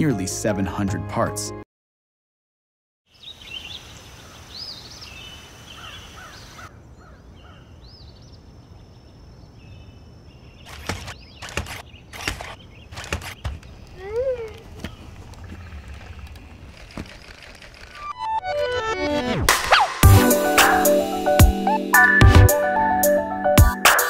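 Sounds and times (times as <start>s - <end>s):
outdoor background hiss: 3.1s - 17.9s
birds chirping and singing: 3.2s - 16.7s
sharp clicks: 10.7s - 18.2s.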